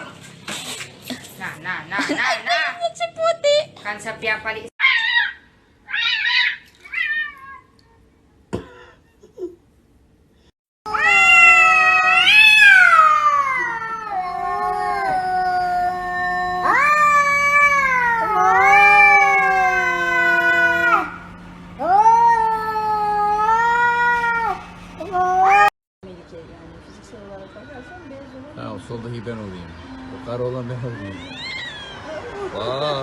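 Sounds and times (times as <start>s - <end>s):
cat yowling: 4.8s - 7.8s, 10.9s - 25.7s, 30.9s - 32.1s.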